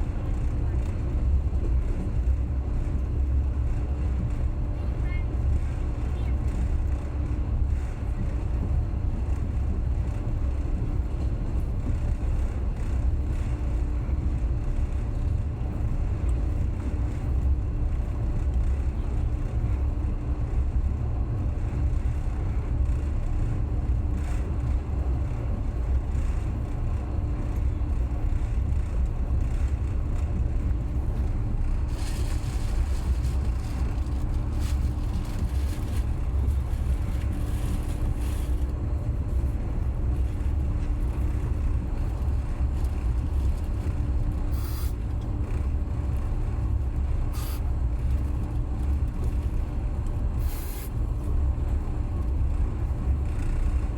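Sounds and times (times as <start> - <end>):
passenger train rumbling: 0.0 - 53.9
hiss: 47.4 - 47.6, 50.4 - 50.9.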